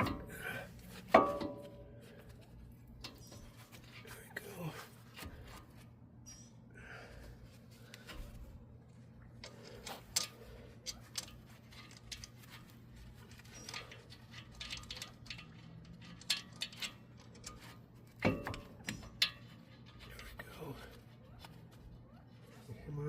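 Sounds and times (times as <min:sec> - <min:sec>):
metal tools clinking: 0:09.4 - 0:20.9.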